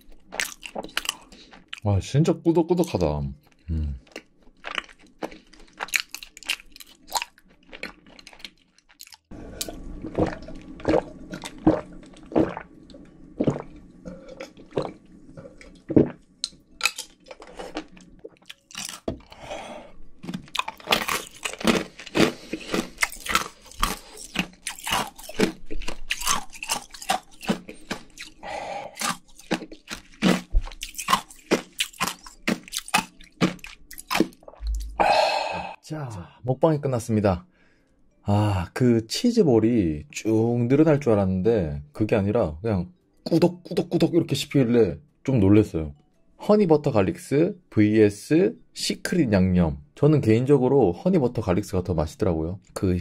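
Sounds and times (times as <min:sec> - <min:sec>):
wet chewing with crisp crunches: 0:00.0 - 0:01.8, 0:02.8 - 0:19.4, 0:20.2 - 0:35.0.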